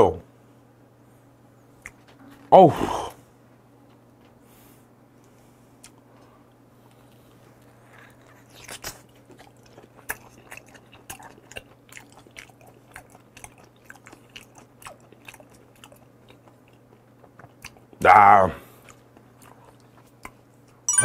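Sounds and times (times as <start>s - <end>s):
chewing mouth clicks: 6.9s - 18.0s, 18.8s - 20.8s.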